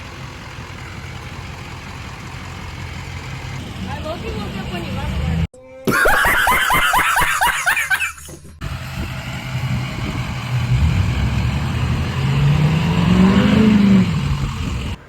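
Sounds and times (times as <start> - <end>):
diesel truck engine running: 0.0 - 5.5, 8.5 - 15.0
road noise: 0.0 - 5.5, 6.9 - 15.0.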